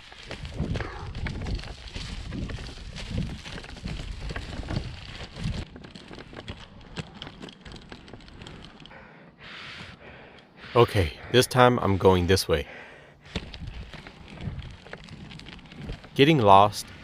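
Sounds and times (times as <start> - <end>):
skate wheels rolling on dirt: 0.0 - 17.0
wind on microphone: 0.4 - 5.7, 13.4 - 16.0.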